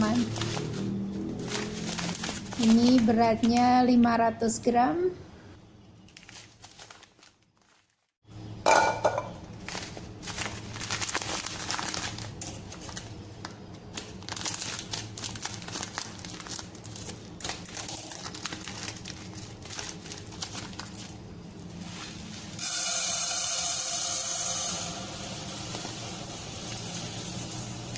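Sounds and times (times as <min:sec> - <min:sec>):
plastic bag crinkling: 0:00.0 - 0:04.0, 0:06.0 - 0:08.2, 0:09.4 - 0:22.6.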